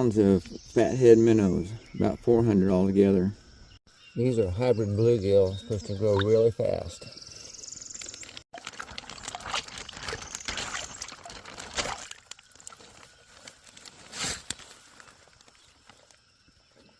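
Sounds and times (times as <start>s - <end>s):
water splashing into a pond: 8.1s - 14.6s.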